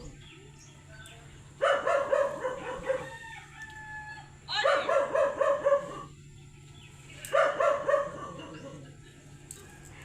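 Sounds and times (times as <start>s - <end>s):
dog barking: 1.6s - 3.2s, 4.6s - 6.1s, 7.3s - 8.6s.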